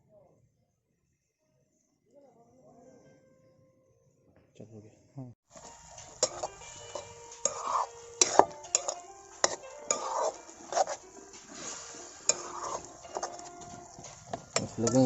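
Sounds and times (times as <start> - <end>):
spoon scraping pot: 5.5 - 15.0
metal spoon knocking metal pot: 5.6 - 10.9, 12.3 - 15.0.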